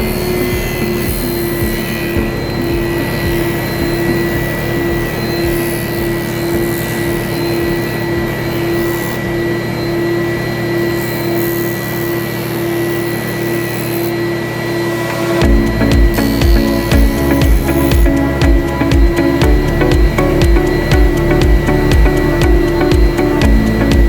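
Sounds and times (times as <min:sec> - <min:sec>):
power tool motor whine: 0:00.0 - 0:24.0.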